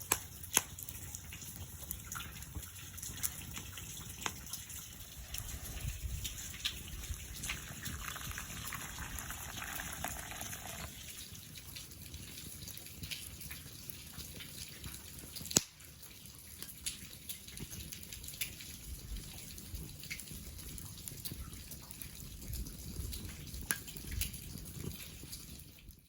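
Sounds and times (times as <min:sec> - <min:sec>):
rain dripping: 0:00.0 - 0:26.0
sharp snap: 0:15.5 - 0:15.8.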